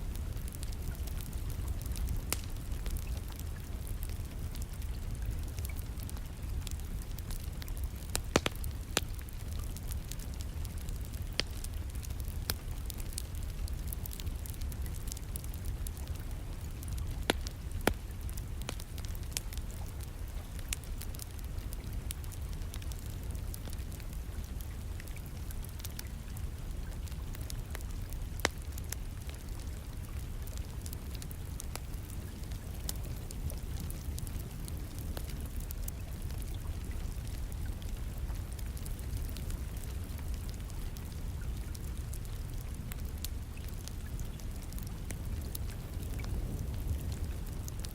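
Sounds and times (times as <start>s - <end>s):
wood fire crackling and popping: 0.0s - 47.9s
rain hiss: 30.3s - 47.9s.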